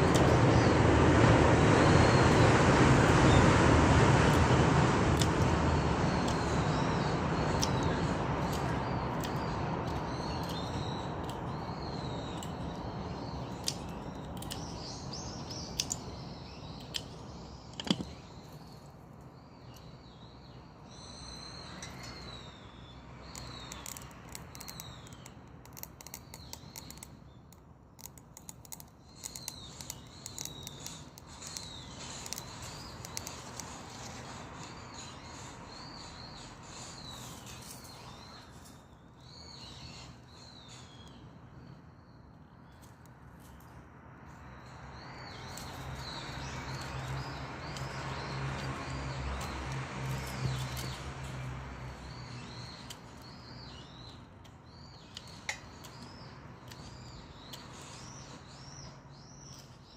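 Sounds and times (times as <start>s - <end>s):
birds chirping: 0.0s - 59.9s
branches crackling in a stove: 44.7s - 57.7s.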